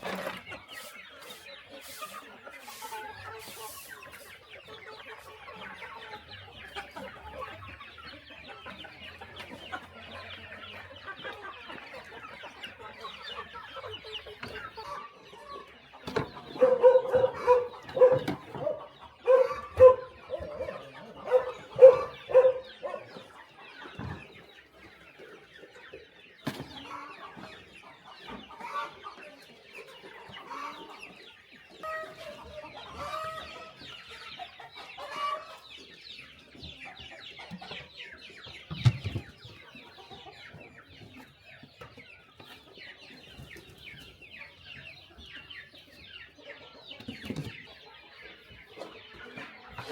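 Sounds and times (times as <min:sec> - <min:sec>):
chickens clucking: 0:00.0 - 0:49.9
chicken giving loud repeated calls: 0:16.0 - 0:23.3.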